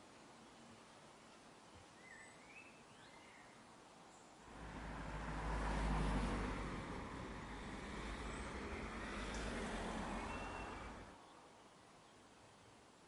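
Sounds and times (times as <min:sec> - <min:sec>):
faint bird chirps: 0:01.7 - 0:04.3, 0:10.1 - 0:12.7
road vehicle passing: 0:04.4 - 0:11.2.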